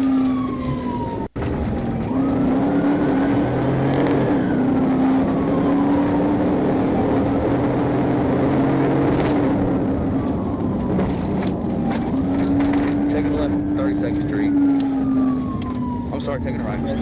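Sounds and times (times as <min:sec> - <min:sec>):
car engine and road noise: 0:00.0 - 0:17.0
faint siren wail: 0:00.0 - 0:17.0.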